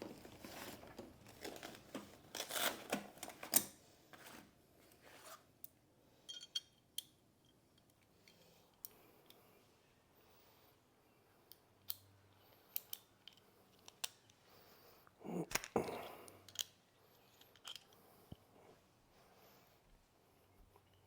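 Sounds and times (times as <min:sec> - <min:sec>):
metal parts clicking: 0:16.5 - 0:18.0.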